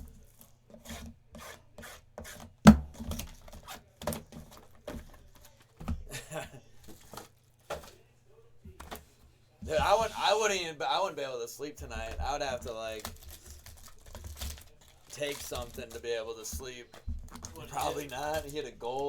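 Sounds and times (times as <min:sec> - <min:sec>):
sharp knock on table: 0:02.7 - 0:03.0
card packs rubbing and scraping: 0:11.9 - 0:19.0.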